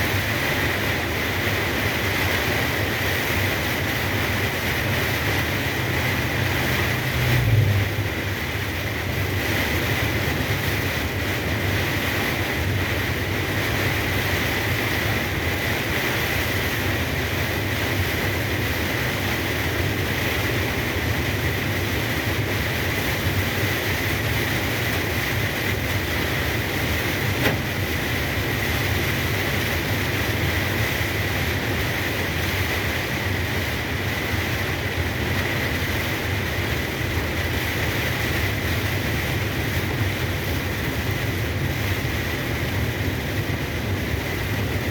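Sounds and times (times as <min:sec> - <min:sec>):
truck engine drone: 0:00.0 - 0:33.8
rain and road noise hiss: 0:00.0 - 0:44.9.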